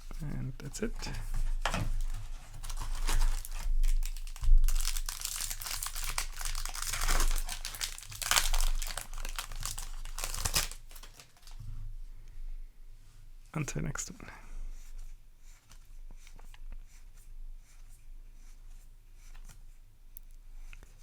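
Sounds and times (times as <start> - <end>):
foil wrapper crinkling and tearing: 0.9 - 11.6.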